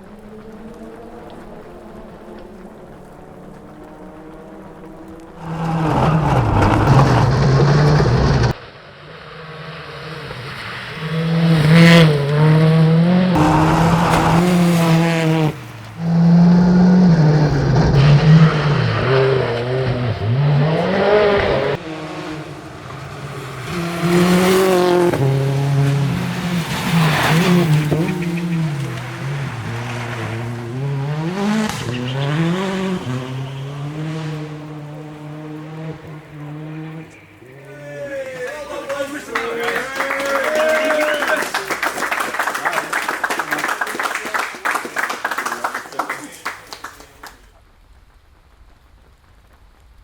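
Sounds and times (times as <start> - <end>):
rally car engine revving: 0.0 - 39.1.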